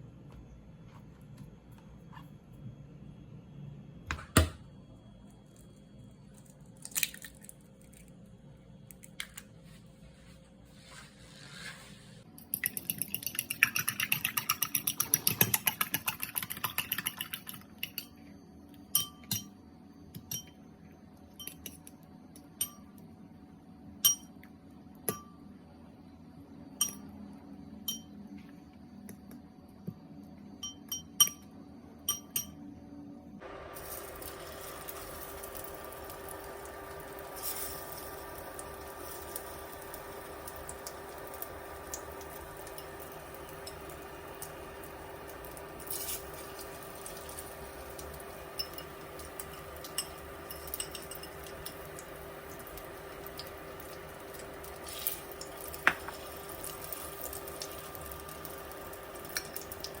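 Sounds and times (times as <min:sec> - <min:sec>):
steady hiss with low hum: 0:00.0 - 1:00.0
utensils tapping: 0:45.9 - 0:52.8
dishes clinking: 0:48.6 - 0:51.9.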